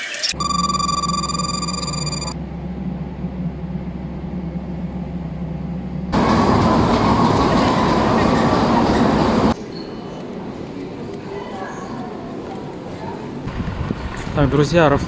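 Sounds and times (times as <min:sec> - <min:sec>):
high-pitched vehicle whine: 0:00.2 - 0:09.6
low vehicle hum: 0:00.4 - 0:09.6
rushing noise: 0:06.1 - 0:09.6.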